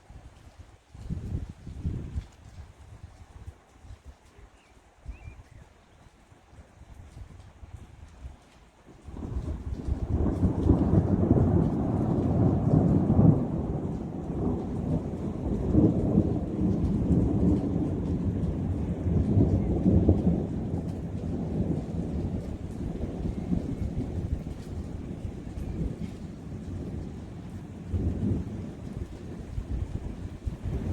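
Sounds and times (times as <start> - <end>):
thunder rumbling: 9.0 - 30.9.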